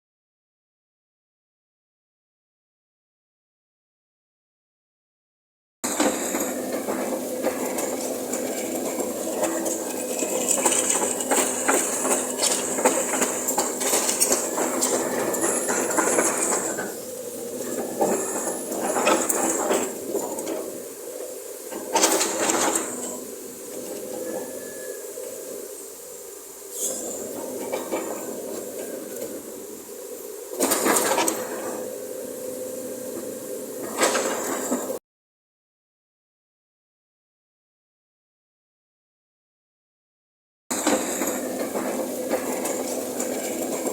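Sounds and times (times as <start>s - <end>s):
excavator engine humming: 5.9s - 35.0s, 40.8s - 43.9s
hydraulic hissing surges: 5.9s - 35.0s.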